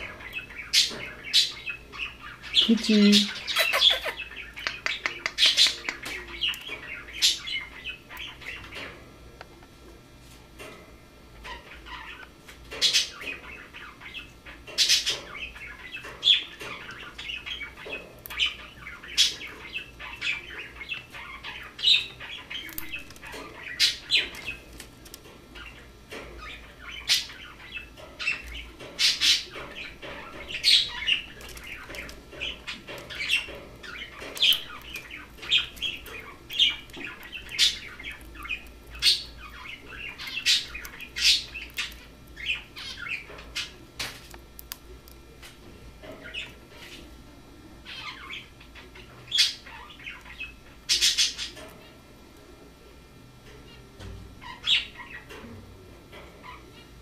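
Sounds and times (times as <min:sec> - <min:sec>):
cockatiel chirping and chattering: 0:00.0 - 0:08.9, 0:11.4 - 0:24.7, 0:25.6 - 0:43.8, 0:47.8 - 0:51.6.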